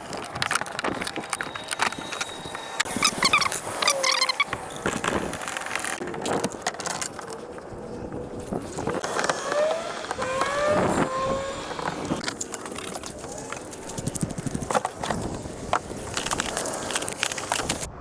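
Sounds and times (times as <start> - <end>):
gear knocking and clattering: 0.0 - 17.9
short squeaks: 0.5 - 6.0.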